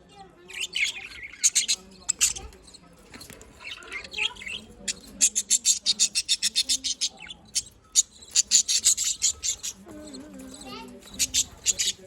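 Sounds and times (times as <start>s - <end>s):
budgies chirping and warbling: 0.0s - 12.0s.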